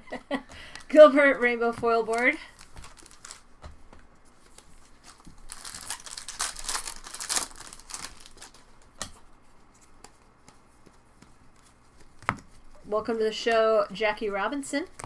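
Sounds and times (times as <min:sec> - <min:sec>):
plastic wrapper crinkling and tearing: 0:02.0 - 0:03.5, 0:04.4 - 0:09.0.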